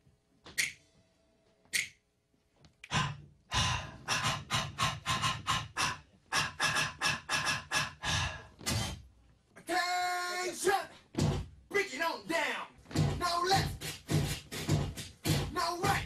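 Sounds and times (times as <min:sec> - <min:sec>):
person panting: 0:02.9 - 0:09.0.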